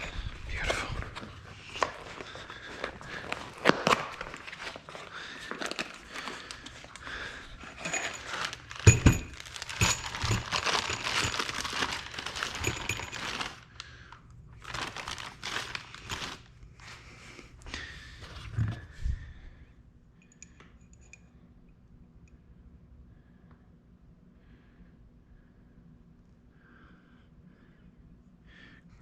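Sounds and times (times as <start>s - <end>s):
packaging crinkling and tearing: 0.9s - 13.7s, 14.6s - 16.5s.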